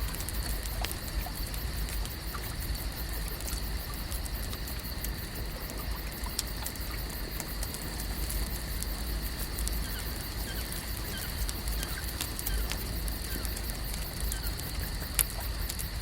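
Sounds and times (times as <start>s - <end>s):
continuous hiss: 0.0s - 16.0s
small clicks and crackles: 0.0s - 16.0s
faint chirps: 9.6s - 15.7s.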